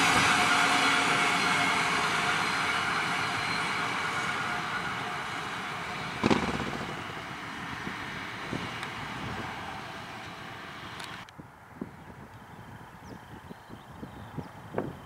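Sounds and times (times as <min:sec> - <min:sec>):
train wheels on rails: 0:00.0 - 0:11.3
sharp knock: 0:06.2 - 0:07.1.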